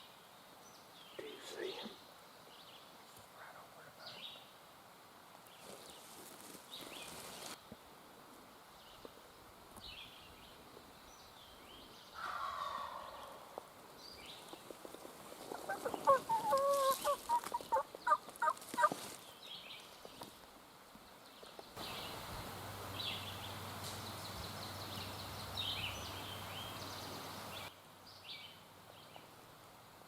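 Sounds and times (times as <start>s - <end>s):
small songbirds chirping: 8.7s - 14.8s, 19.2s - 29.5s
turkey gobble: 12.2s - 13.4s, 15.5s - 19.0s
turkey yelping: 15.5s - 18.9s.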